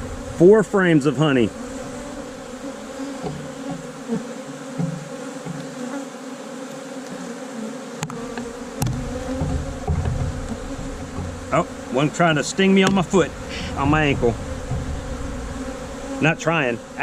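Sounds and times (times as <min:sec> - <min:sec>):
bees buzzing: 0:00.0 - 0:17.0
low rumbling noise: 0:12.5 - 0:16.1.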